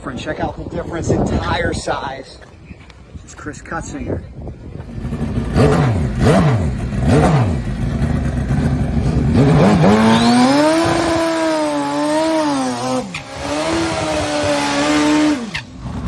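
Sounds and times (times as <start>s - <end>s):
motorcycle engine revving: 4.8s - 16.0s.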